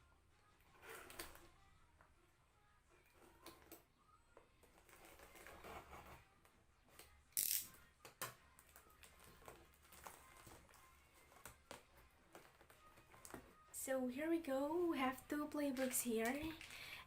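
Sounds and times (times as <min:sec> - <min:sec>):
cardboard and plastic rustling: 0:08.8 - 0:13.7.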